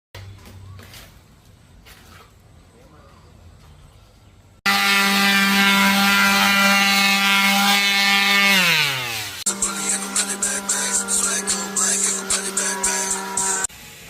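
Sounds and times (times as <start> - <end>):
power tool motor whining: 4.7 - 13.7
background music with a beat: 9.5 - 13.7.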